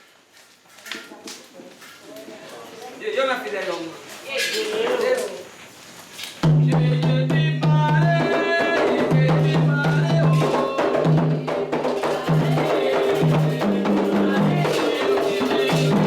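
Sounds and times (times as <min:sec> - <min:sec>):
hand drums and percussion: 0:06.4 - 0:16.0
people singing: 0:06.4 - 0:16.0.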